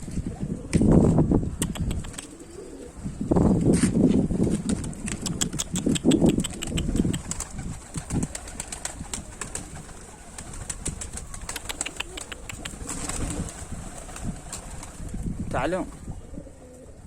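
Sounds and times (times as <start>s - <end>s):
pigeons cooing: 0.2s - 3.7s, 4.6s - 15.1s, 15.8s - 17.0s
small sharp clicks and taps: 11.5s - 12.8s.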